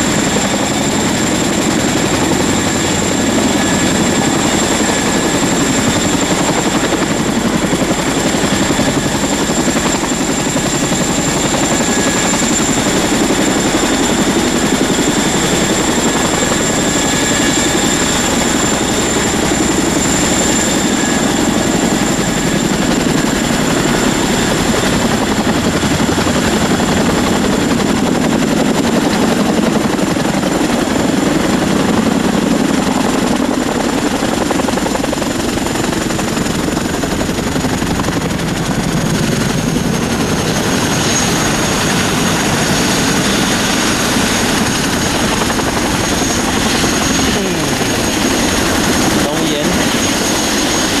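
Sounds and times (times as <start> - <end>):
loud motor drone with whine: 0.0 - 51.0.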